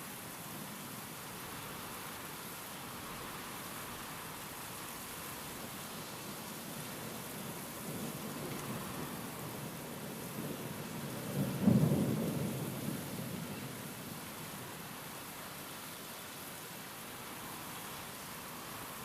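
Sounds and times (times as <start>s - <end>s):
heavy rain hissing: 0.0s - 19.0s
thunder rumble: 11.2s - 13.5s.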